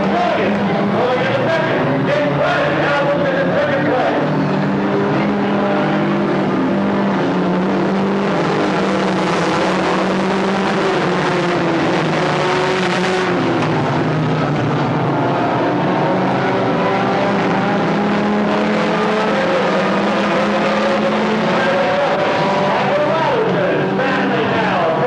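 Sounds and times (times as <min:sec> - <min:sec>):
stock car engines running: 0:00.0 - 0:25.0.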